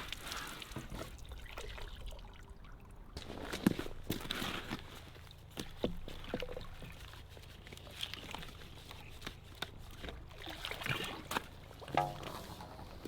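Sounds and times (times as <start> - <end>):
water trickling: 10.3 - 13.0.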